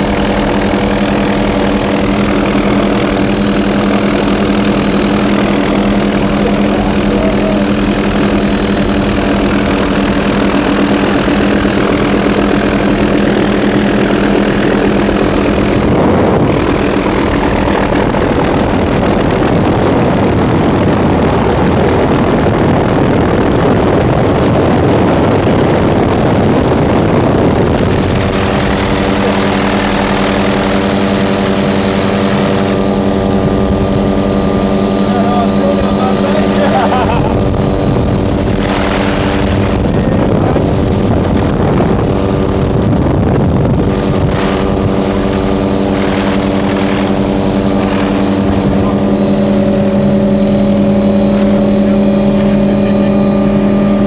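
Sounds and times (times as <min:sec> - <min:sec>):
loud rushing noise: 0:00.0 - 0:54.0
steady engine drone: 0:00.0 - 0:54.0.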